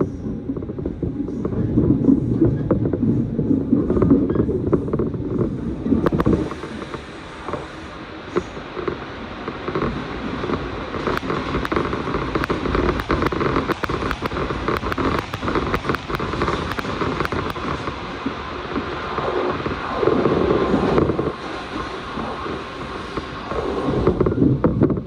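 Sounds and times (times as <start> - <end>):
train wheels rumbling on rail: 0.0 - 25.0
sharp ticks and crackles: 6.0 - 7.0, 8.4 - 18.0.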